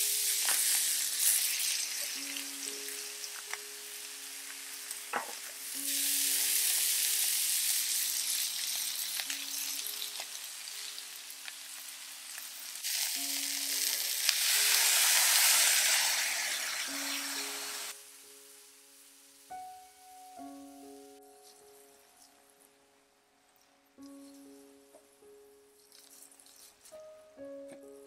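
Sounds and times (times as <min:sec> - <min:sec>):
chicken sizzling in a pot: 0:00.0 - 0:22.2
stock poured into hot pot: 0:12.8 - 0:17.9.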